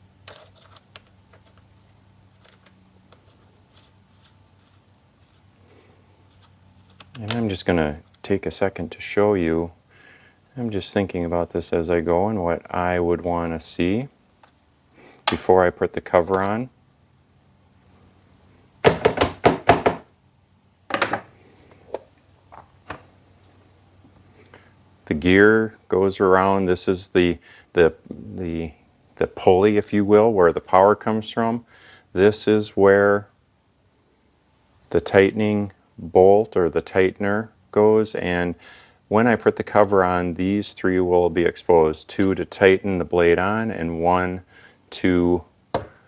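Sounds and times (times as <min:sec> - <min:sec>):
faint steady hum: 0:00.0 - 0:46.0
chainsaw parts knocking and clattering: 0:18.8 - 0:20.1, 0:20.9 - 0:21.3, 0:45.7 - 0:46.0.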